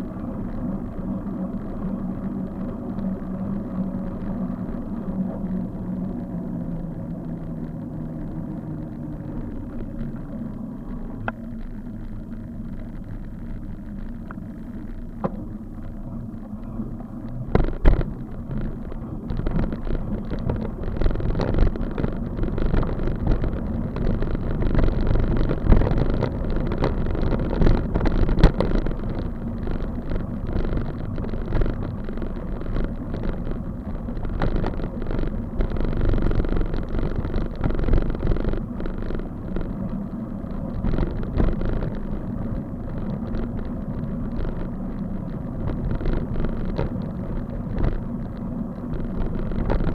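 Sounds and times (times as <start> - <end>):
bicycle rumbling on road: 0.0 - 49.9
low vehicle hum: 0.0 - 49.9
bicycle knocks and rattles: 17.3 - 49.9.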